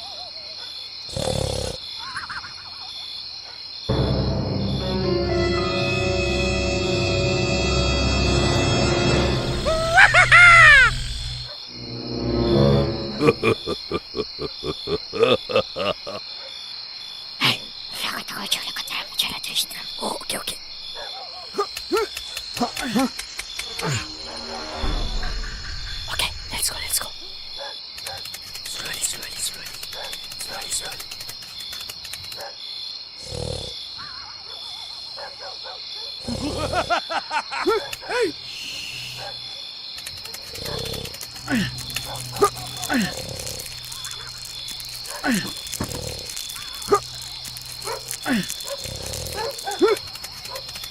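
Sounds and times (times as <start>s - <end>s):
high insect chirring: 0.9s - 34.2s, 36.3s - 50.9s
high-pitched trill: 3.9s - 10.3s
wavering animal calls: 9.6s - 11.6s.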